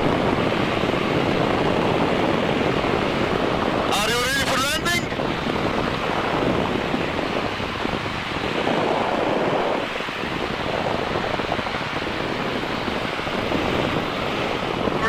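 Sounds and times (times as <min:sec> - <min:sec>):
wind rushing on microphone: 0:00.0 - 0:15.0.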